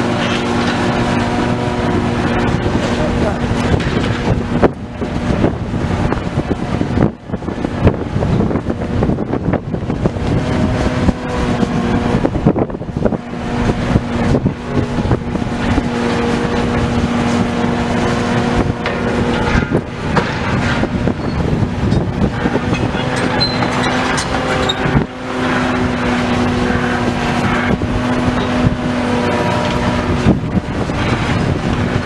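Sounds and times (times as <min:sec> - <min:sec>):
diesel engine running under load: 0:00.0 - 0:32.0
debris knocking and crunching: 0:02.2 - 0:05.6, 0:18.1 - 0:24.8.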